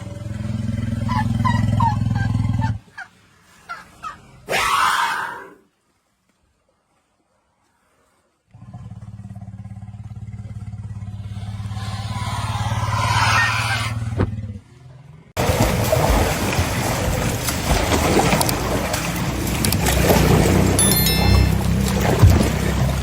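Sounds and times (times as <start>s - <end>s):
engine droning: 0.0s - 2.7s, 8.5s - 23.0s.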